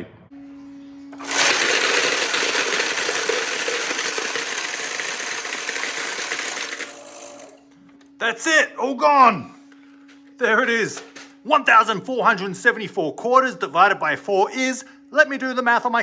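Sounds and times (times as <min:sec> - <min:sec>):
coin machine hum: 0:01.2 - 0:07.6
coins clattering: 0:01.2 - 0:07.6.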